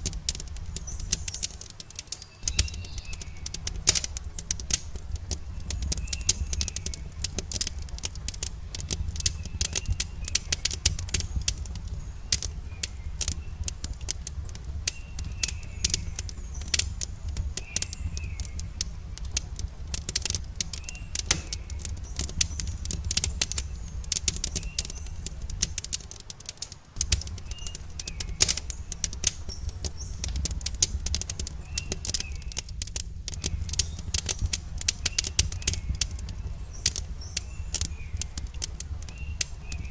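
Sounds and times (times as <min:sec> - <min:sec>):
steady low rumble: 0:00.0 - 0:26.2, 0:27.0 - 0:39.9
small birds chirping: 0:00.0 - 0:39.9
wood fire crackling and popping: 0:00.0 - 0:39.9.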